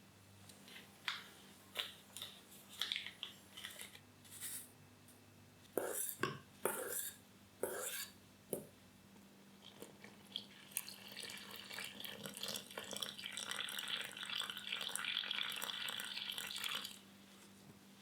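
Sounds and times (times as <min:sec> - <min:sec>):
water pouring into a bowl: 0:10.3 - 0:17.0.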